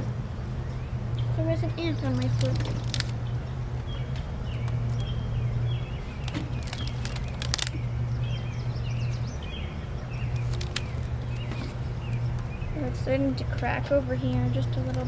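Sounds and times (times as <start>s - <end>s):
small birds chirping: 0.0s - 15.0s
steady low hum: 0.0s - 15.0s
sharp clicks: 2.2s - 3.2s, 6.2s - 7.8s, 10.3s - 11.5s.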